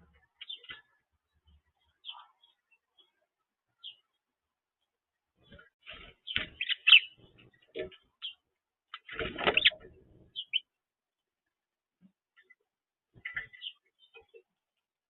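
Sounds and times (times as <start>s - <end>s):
small birds chirping: 0.0s - 15.0s
knocks and wing flutters: 9.0s - 10.2s.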